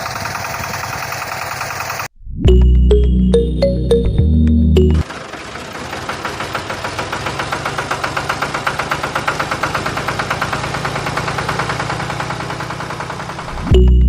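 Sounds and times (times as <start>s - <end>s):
small motor clattering: 0.0s - 2.1s, 5.1s - 13.6s.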